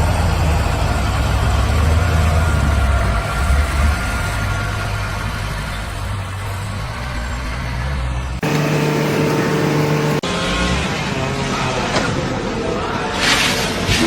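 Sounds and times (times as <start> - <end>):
low engine rumble: 8.4 - 10.2
steady multi-tone hum: 8.4 - 10.2.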